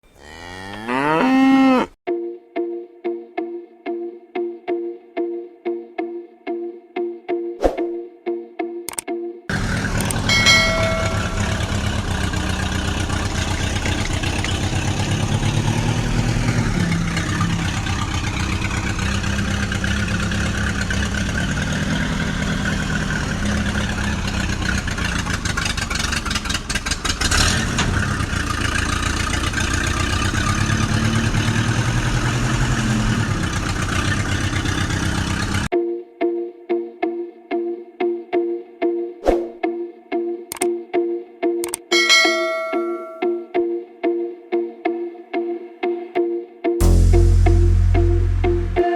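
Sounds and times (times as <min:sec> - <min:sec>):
tractor diesel engine chugging: 0:09.5 - 0:35.7
short high tone: 0:10.0 - 0:12.2, 0:41.9 - 0:43.6, 0:46.8 - 0:48.9.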